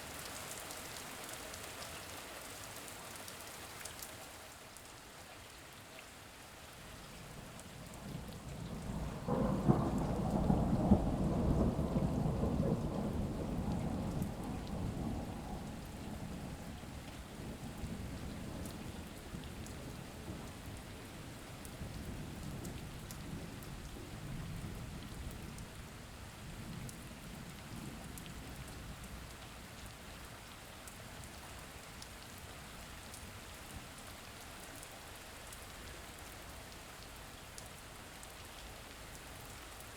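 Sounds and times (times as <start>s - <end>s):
steady rain falling: 0.0s - 39.9s
low roll of thunder: 7.3s - 29.3s.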